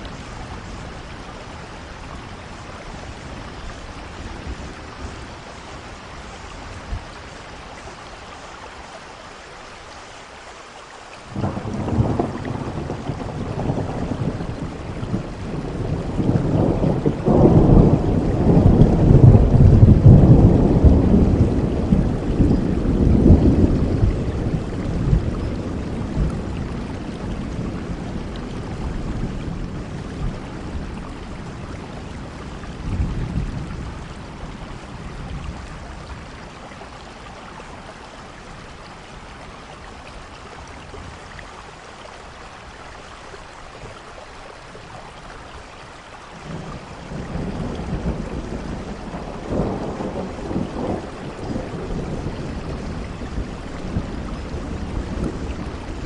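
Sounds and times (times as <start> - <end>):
steady rain: 0.0 - 56.0
thunder rumbling: 11.3 - 36.8, 46.4 - 56.0.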